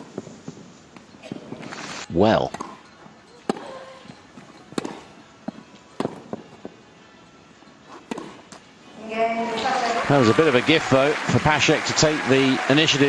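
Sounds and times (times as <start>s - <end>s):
tennis ball hit by rackets: 2.5s - 2.8s, 3.4s - 3.9s, 4.6s - 6.4s, 8.0s - 8.6s.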